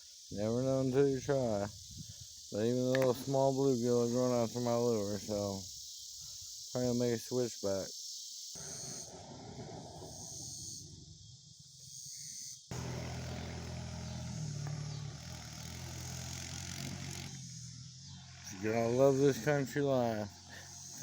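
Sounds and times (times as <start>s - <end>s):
crickets chirring: 0.0s - 21.0s
vehicle engine humming: 12.7s - 21.0s.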